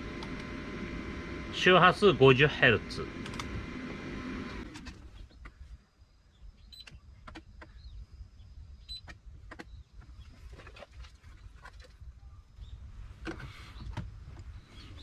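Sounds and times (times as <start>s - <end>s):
low hum: 0.0s - 5.2s.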